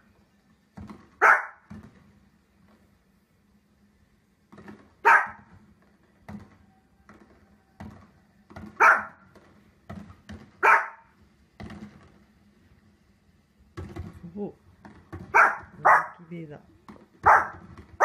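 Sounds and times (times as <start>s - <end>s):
small dog barking: 1.2s - 1.6s, 5.0s - 5.5s, 8.8s - 9.2s, 10.6s - 11.1s, 15.3s - 16.3s, 17.2s - 18.0s.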